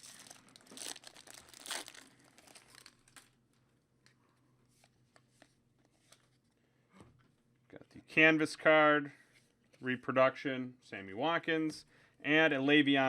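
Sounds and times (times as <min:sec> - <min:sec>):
plastic wrappers crinkling and tearing: 0:00.0 - 0:04.2.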